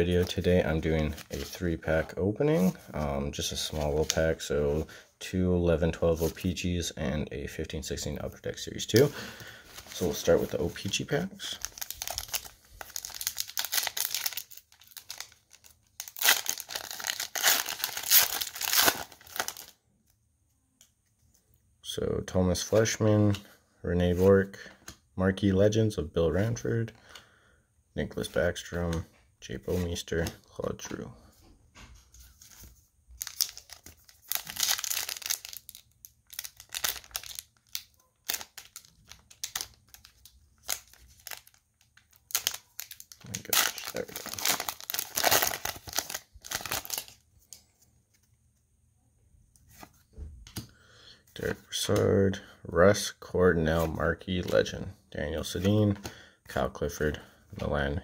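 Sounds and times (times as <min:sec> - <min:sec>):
wrapper crinkling and tearing: 0:09.8 - 0:19.8, 0:33.2 - 0:47.2.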